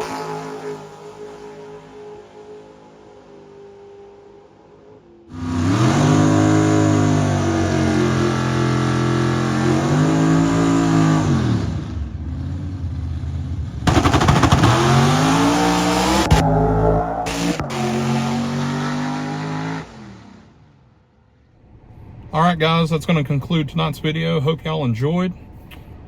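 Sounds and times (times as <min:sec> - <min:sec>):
car engine revving hard: 0:00.0 - 0:01.6, 0:05.3 - 0:12.6, 0:13.8 - 0:20.6
crackling engine noise: 0:13.8 - 0:20.1.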